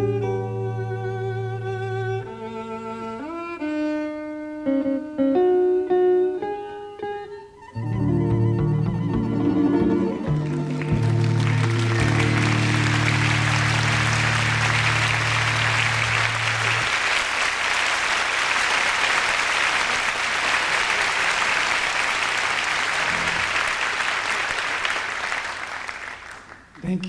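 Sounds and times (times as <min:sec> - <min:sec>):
band holding low note: 0:07.8 - 0:17.0
audience applauding: 0:09.4 - 0:27.0.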